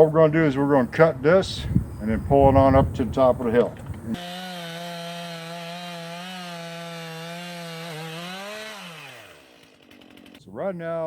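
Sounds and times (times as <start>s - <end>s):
chainsaw cutting through log: 4.2s - 10.4s.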